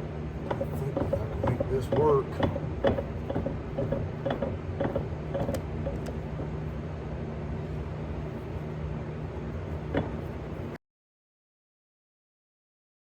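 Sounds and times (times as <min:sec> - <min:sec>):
low machine hum: 0:00.0 - 0:10.8
light clicks and knocks: 0:00.4 - 0:06.5, 0:09.9 - 0:10.3.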